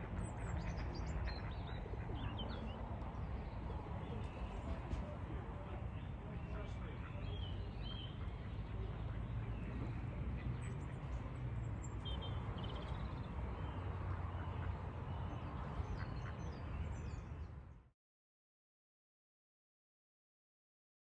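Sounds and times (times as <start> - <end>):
ducks quacking: 0.0 - 2.8, 13.7 - 16.8
small birds chirping: 0.1 - 17.6.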